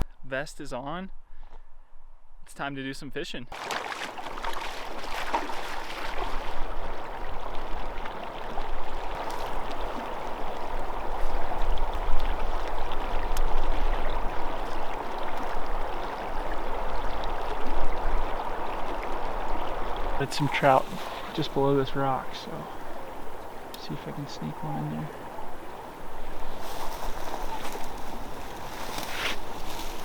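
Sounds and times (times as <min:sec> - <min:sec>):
river water flowing: 0:03.5 - 0:30.0.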